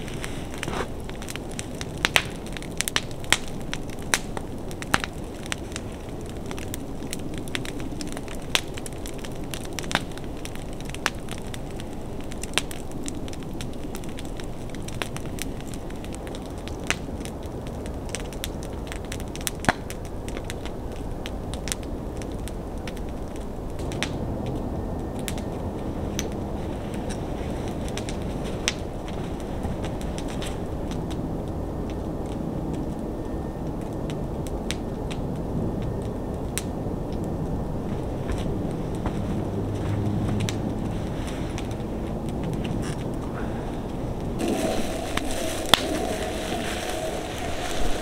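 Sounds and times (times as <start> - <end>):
wood fire crackling and popping: 0.0 - 48.0
steady low noise: 43.7 - 48.0.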